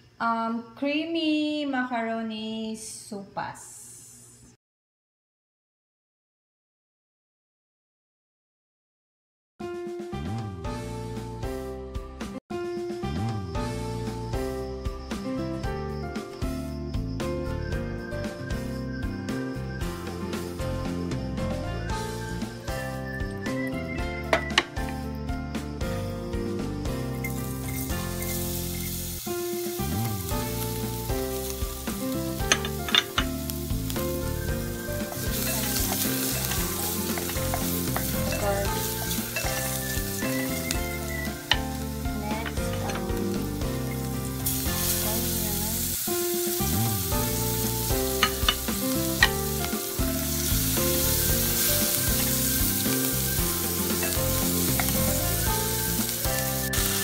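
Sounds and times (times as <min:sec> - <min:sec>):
garlic and onion sizzling: 0:18.0 - 0:57.0.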